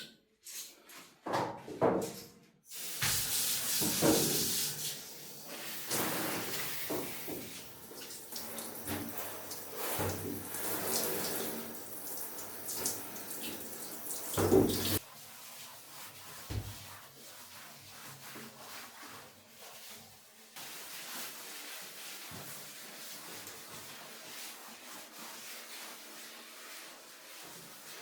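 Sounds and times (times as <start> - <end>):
tap water running and splashing: 2.7 - 19.9.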